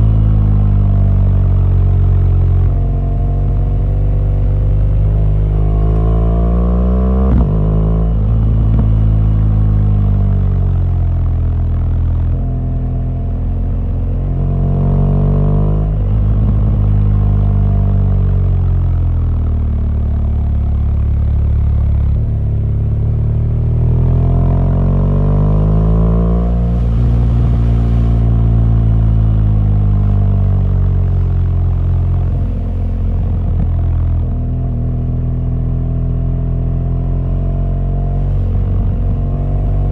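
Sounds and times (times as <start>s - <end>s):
motorcycle engine revving: 1.5s - 10.1s.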